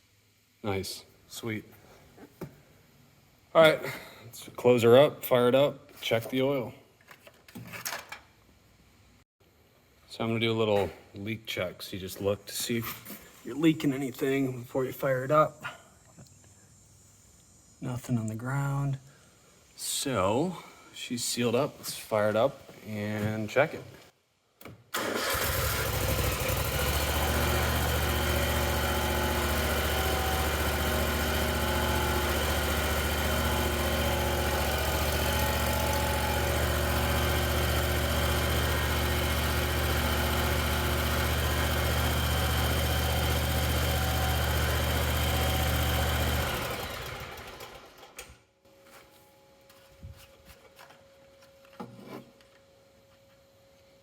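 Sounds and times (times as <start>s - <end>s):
mower engine running: 25.0s - 48.2s.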